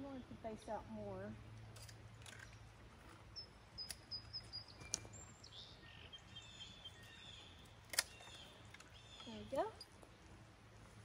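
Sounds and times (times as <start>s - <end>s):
faint bird chirps: 3.3s - 9.8s
pruning shears snipping branches: 7.8s - 9.7s.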